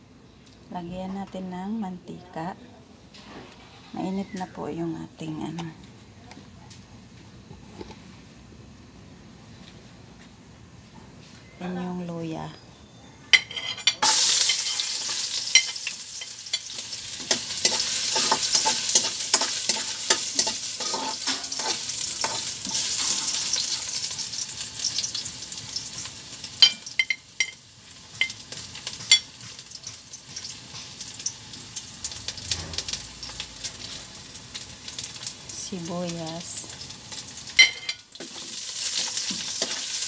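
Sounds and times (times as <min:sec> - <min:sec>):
ginger sizzling in oil: 0:13.8 - 0:40.0
metal ladle stirring: 0:15.5 - 0:23.4.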